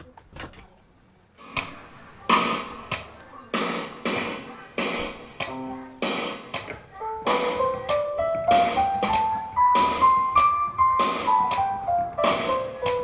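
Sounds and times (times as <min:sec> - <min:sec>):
keyboard drum rhythm: 0:01.4 - 0:13.0
keyboard chord: 0:04.0 - 0:13.0.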